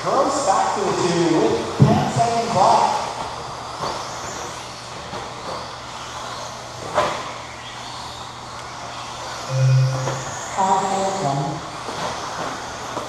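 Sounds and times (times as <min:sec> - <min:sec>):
remote control truck motors whining: 0:03.1 - 0:13.0.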